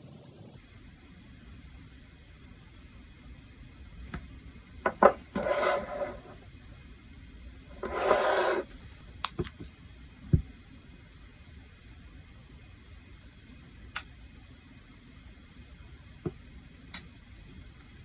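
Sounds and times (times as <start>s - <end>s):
short scraping strokes: 5.4s - 6.4s, 7.8s - 8.7s.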